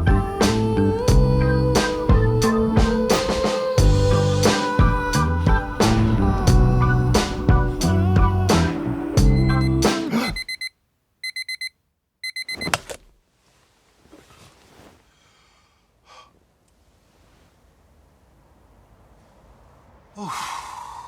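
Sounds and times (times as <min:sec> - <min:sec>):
music: 0:00.0 - 0:10.1
alarm clock beeping: 0:09.3 - 0:12.8.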